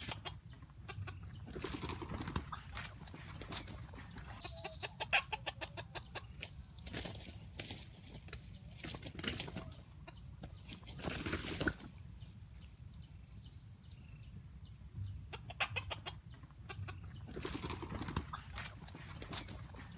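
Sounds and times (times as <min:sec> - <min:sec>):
fowl clucking: 0:00.0 - 0:06.6, 0:15.1 - 0:19.9
rapid wing-flapping: 0:01.5 - 0:04.5, 0:06.4 - 0:09.8, 0:10.6 - 0:12.0, 0:17.3 - 0:19.9.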